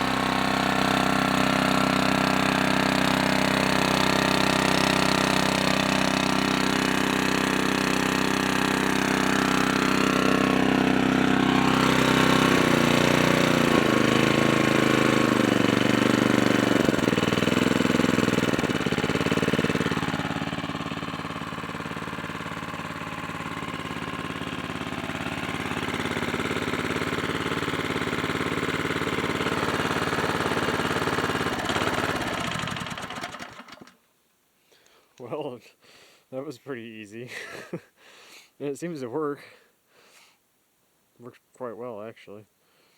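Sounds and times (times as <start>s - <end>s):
pressure washer gas engine running: 0.0s - 34.0s.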